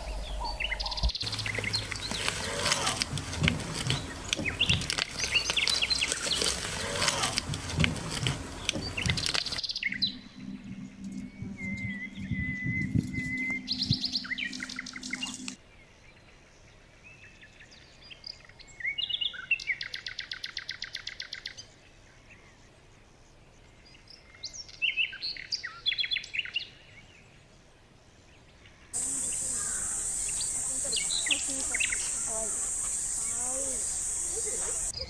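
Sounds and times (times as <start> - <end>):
low steady hum: 0.0 - 15.6
small birds chirping: 0.0 - 22.7, 28.3 - 35.0.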